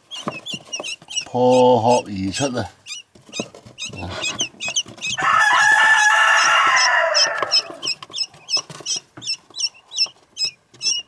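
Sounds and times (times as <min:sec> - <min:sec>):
quail chicks peeping: 0:00.0 - 0:11.0
loud crowing call: 0:05.2 - 0:07.9.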